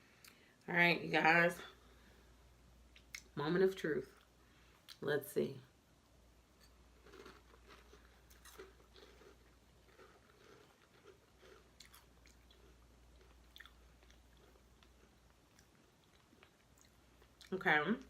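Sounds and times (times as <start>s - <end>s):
chewing crunchy cereal: 6.7s - 17.6s.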